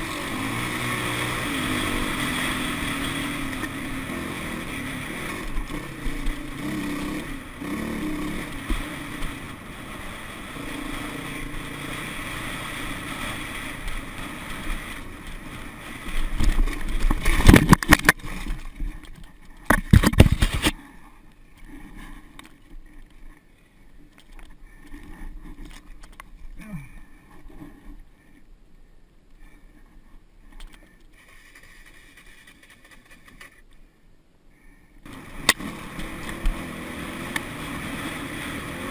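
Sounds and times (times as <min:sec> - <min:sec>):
dirt bike engine running: 0:00.0 - 0:19.0, 0:35.1 - 0:38.9.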